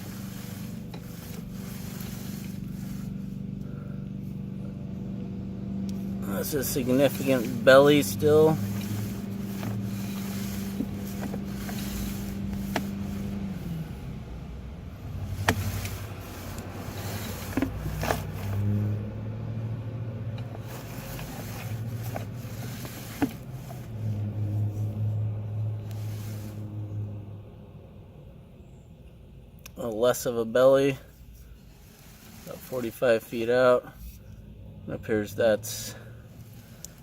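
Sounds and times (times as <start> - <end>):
low machine hum: 0.0 - 27.5.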